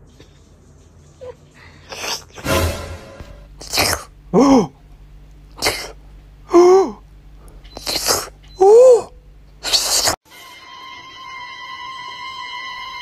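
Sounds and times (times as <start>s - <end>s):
sneeze-like breathy burst: 9.6s - 10.2s.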